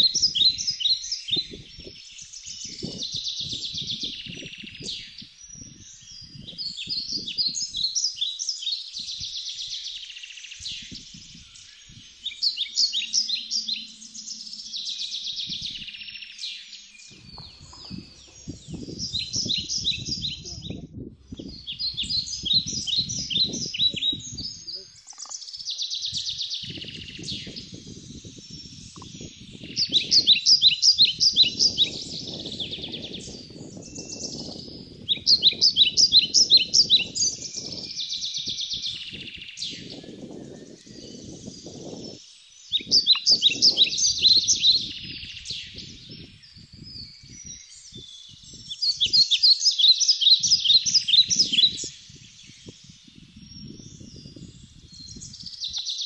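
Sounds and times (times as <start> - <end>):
soft bird twittering: 0.0 - 56.0
songbird singing: 0.0 - 56.0
low rumbling noise: 17.1 - 24.6.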